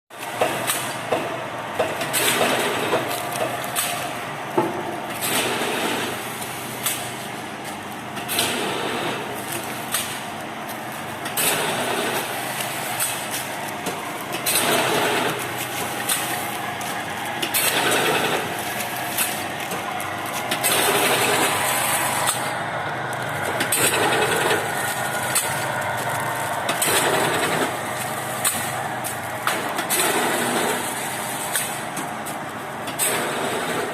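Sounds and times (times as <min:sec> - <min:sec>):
packing machine drone: 0:00.2 - 0:33.9
sharp machine clacks: 0:14.3 - 0:19.7, 0:26.7 - 0:28.7.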